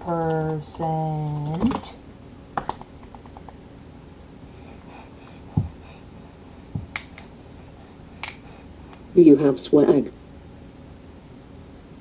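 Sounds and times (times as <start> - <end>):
faint steady hum: 0.0 - 12.0
dull thumps: 5.5 - 5.9, 6.7 - 7.0.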